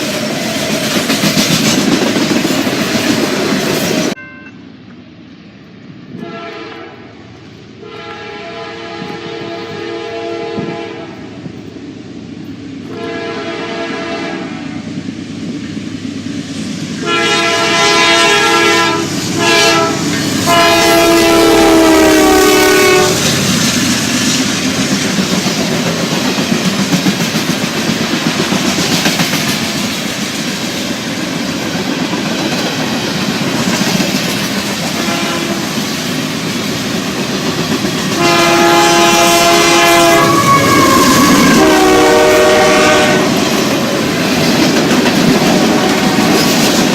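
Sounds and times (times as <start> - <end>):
passing train rumble and clatter: 0.0 - 46.9
locomotive air horn blasts: 6.2 - 7.1, 7.8 - 11.2, 12.9 - 14.6, 17.0 - 23.3, 35.0 - 35.7, 38.2 - 43.4.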